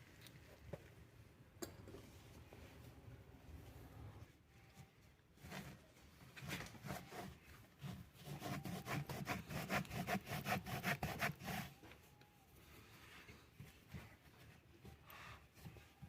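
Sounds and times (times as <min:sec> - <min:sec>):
scraping strokes by hand: 0:05.4 - 0:12.1.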